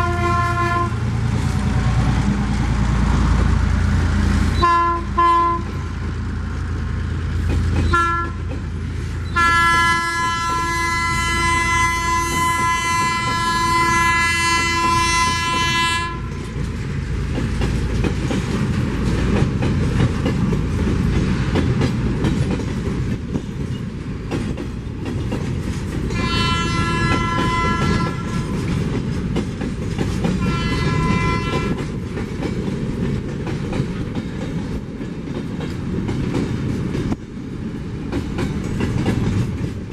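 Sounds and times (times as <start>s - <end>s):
locomotive air horn blasts: 0.0s - 1.1s, 4.6s - 5.8s, 7.9s - 8.5s, 9.3s - 16.4s, 26.1s - 28.6s, 30.4s - 31.8s
diesel locomotive rumble: 0.0s - 39.9s
train wheels clattering on rails: 0.0s - 39.9s.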